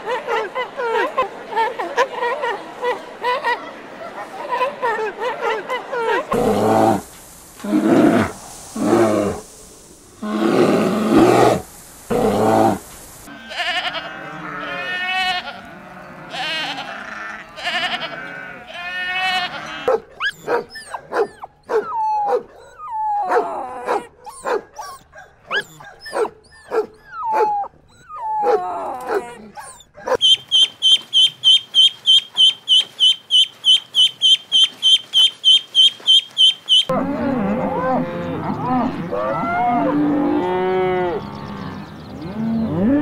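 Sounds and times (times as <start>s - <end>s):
deep loud animal calls: 6.3s - 13.2s
goats bleating: 12.1s - 19.9s
young dog barking: 19.8s - 22.5s, 23.3s - 27.5s, 28.4s - 30.4s.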